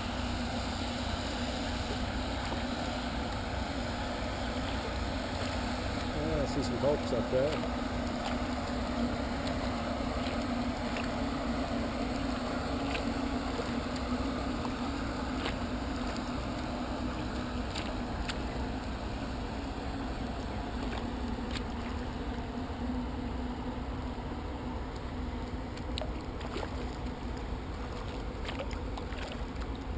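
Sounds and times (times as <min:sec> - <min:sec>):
boat engine drone: 0:00.0 - 0:29.9
faint ticks of water: 0:04.4 - 0:19.2, 0:20.0 - 0:22.5, 0:24.1 - 0:29.9.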